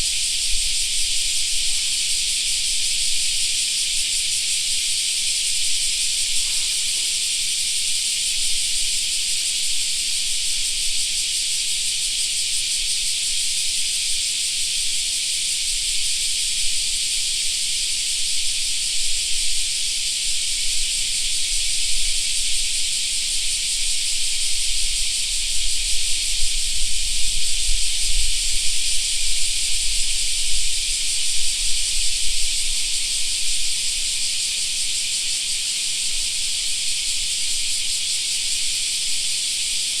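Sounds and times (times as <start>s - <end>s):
cicadas shrilling: 0.0s - 40.0s.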